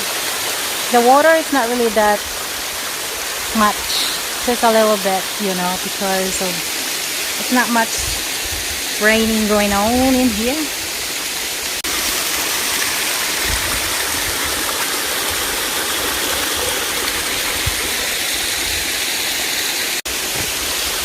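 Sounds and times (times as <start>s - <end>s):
small waterfall splashing: 0.0s - 21.0s
wind on microphone: 8.0s - 8.8s, 13.4s - 14.6s.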